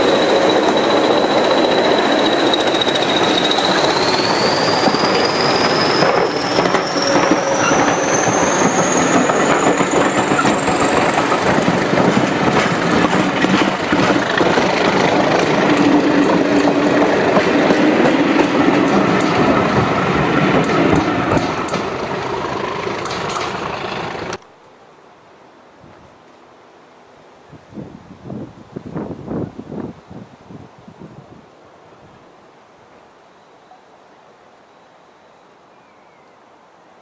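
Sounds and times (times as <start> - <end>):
thin high whine: 0.0 - 12.4
train wheels rumbling and clicking: 0.0 - 24.4.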